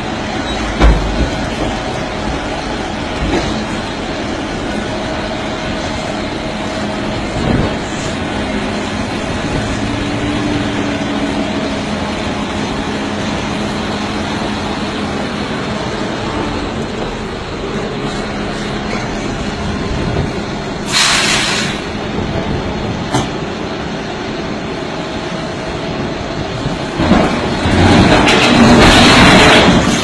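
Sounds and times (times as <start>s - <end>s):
diesel machinery crushing rock: 0.0s - 14.8s, 26.8s - 30.0s.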